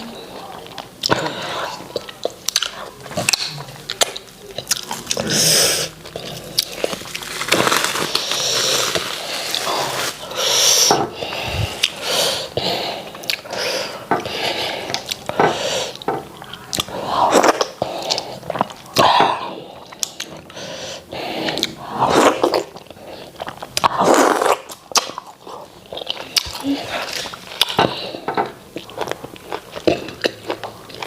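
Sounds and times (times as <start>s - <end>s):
slurping: 0.0s - 31.0s
wet chewing and lip-smacking: 1.8s - 5.2s, 13.1s - 13.6s, 21.5s - 31.0s.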